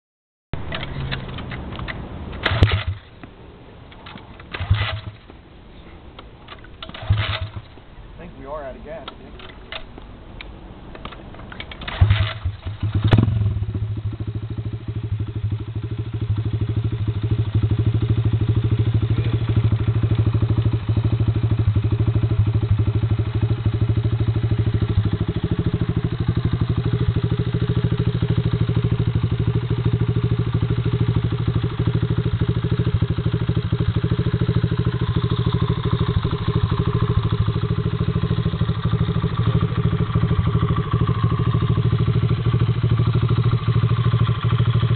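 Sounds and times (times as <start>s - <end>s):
pit bike engine running: 11.8s - 44.9s.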